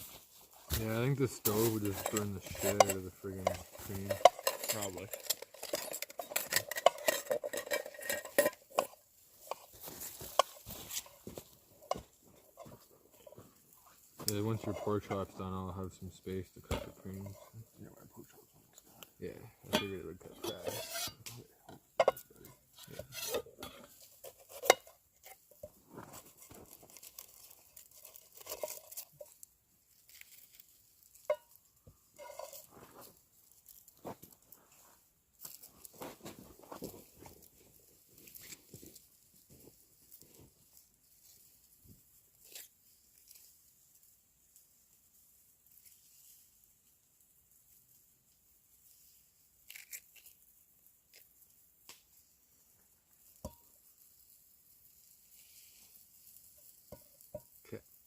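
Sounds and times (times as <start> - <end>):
metal utensils scraping a pan: 0.7 - 17.7, 19.6 - 29.4, 32.1 - 33.1
metal utensil clinking on pot: 1.5 - 9.7, 19.7 - 25.0.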